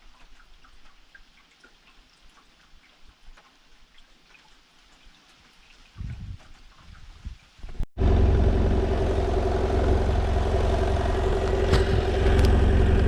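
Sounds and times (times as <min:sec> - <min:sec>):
motorcycle engine idling: 0:08.0 - 0:13.0.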